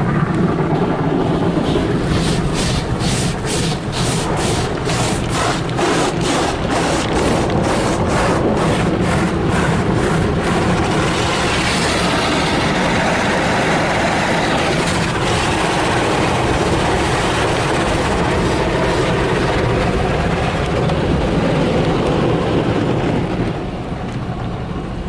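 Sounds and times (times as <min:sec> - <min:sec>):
rushing roar of spray: 0:00.0 - 0:25.0
car wash brushes slapping: 0:01.5 - 0:20.5.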